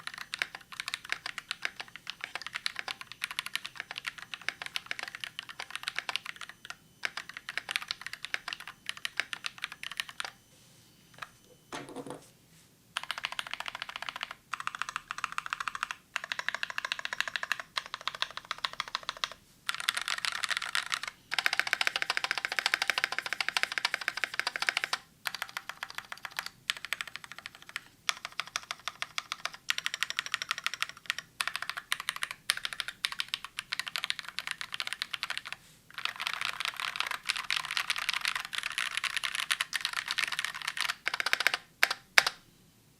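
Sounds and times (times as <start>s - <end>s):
mechanical keyboard typing: 0.0s - 10.4s, 13.0s - 42.4s.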